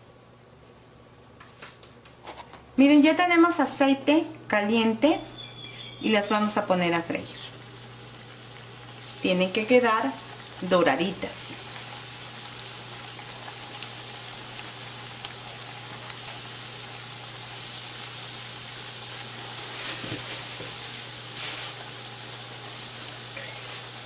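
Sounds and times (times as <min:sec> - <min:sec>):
croquettes deep-frying in oil: 0:06.0 - 0:24.0.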